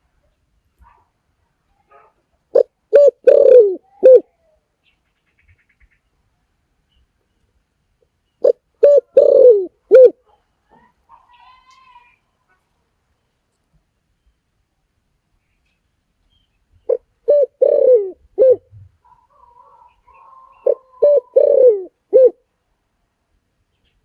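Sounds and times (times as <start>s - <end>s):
dove cooing: 2.5s - 4.5s, 8.4s - 10.9s, 16.9s - 22.4s.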